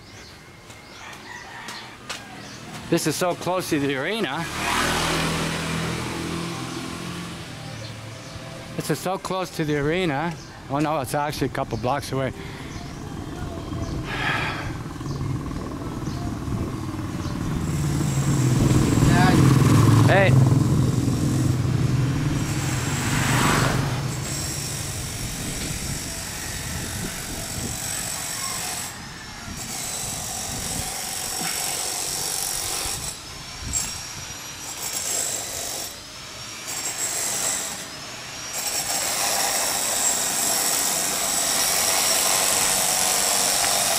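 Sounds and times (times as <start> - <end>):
motorcycle engine: 3.4 - 8.8, 12.7 - 28.2
high-pitched whine: 12.1 - 30.1, 33.0 - 41.9.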